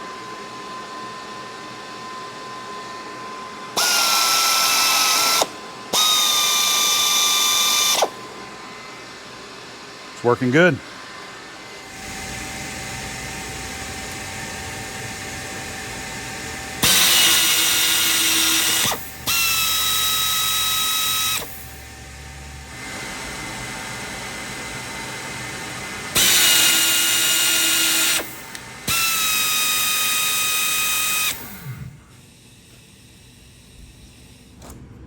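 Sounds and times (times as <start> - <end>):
tapping machine motor whining: 3.8 - 8.2, 16.8 - 22.0, 26.1 - 32.9.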